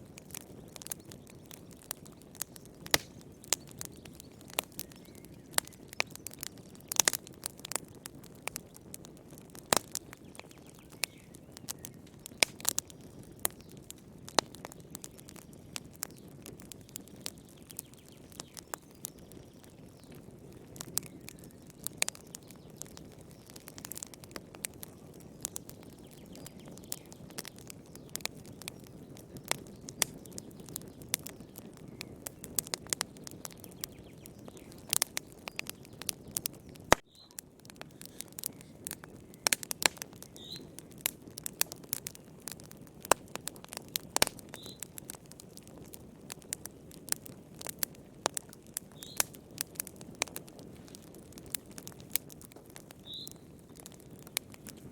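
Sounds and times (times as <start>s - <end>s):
fire crackling and popping: 0.0s - 54.9s
low rush of burning fire: 0.0s - 54.9s.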